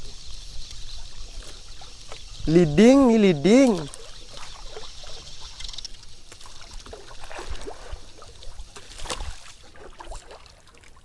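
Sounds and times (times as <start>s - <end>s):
water sloshing around a boat: 0.0s - 11.0s.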